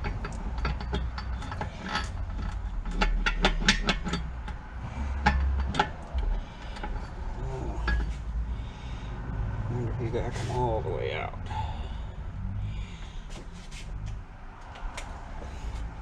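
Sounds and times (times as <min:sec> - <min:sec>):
metal engine parts and tools clinking: 0:00.0 - 0:09.1.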